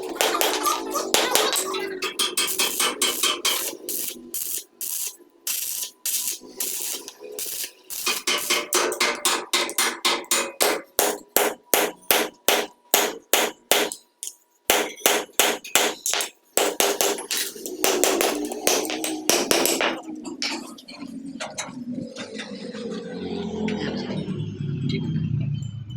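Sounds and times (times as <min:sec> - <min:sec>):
hammer striking metal: 0:00.0 - 0:20.0.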